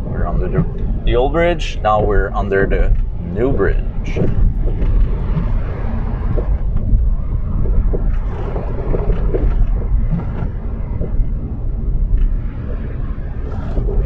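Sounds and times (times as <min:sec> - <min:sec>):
car engine and tyre rumble: 0:00.0 - 0:14.0
car bumps: 0:03.9 - 0:12.4.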